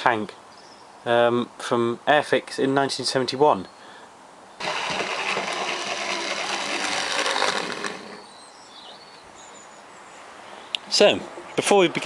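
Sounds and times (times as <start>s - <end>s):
small mechanism rattling clatter: 4.6s - 8.2s.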